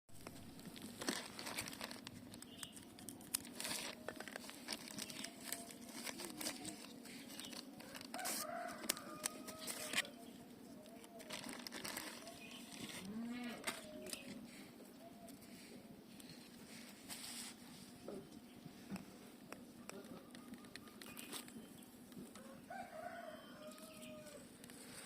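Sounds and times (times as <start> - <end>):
plastic cover crinkling: 0.1 - 10.2, 10.8 - 14.4, 19.9 - 21.7.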